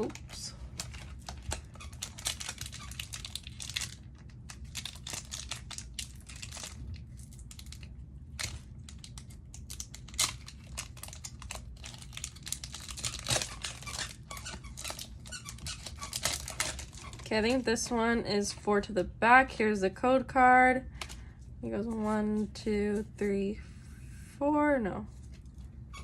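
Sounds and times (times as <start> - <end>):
foil wrapper tearing and crinkling: 0.0 - 17.6.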